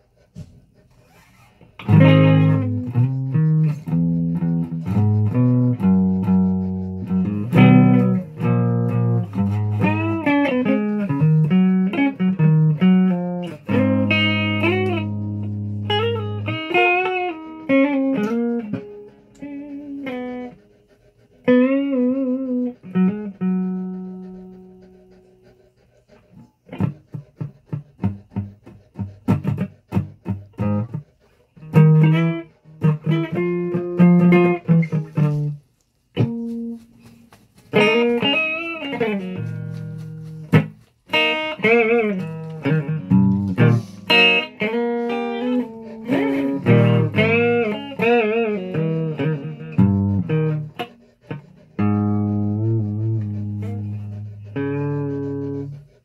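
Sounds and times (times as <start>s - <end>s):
choppy strummed strokes: 36.2s - 53.8s.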